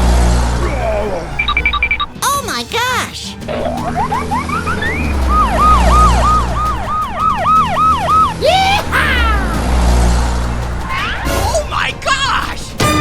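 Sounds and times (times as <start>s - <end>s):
low rumble: 0.0s - 2.2s, 3.4s - 13.0s
emergency siren yelping wail: 3.4s - 12.7s
sliding vocal-like sound effects: 8.3s - 10.2s.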